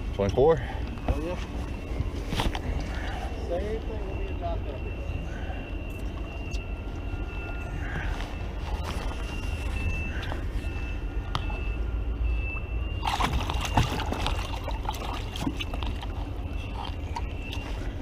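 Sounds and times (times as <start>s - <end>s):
water sloshing around boat: 0.0s - 11.9s, 12.6s - 18.0s
steady low rumble: 0.0s - 18.0s
faint high beeps: 1.2s - 15.2s.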